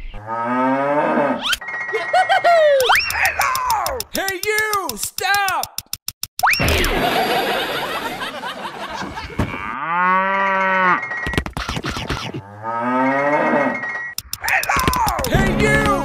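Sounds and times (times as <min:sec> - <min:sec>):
cow mooing: 0:09.5 - 0:11.0.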